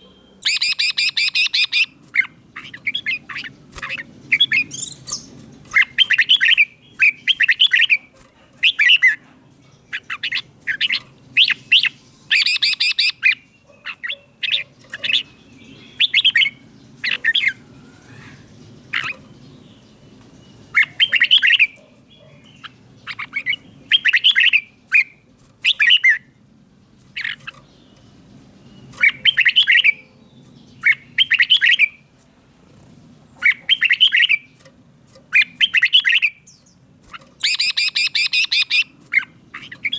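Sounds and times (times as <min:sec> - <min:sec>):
bird whistling phrases: 0:00.4 - 0:01.9, 0:10.0 - 0:13.4, 0:30.9 - 0:32.0, 0:37.4 - 0:38.9.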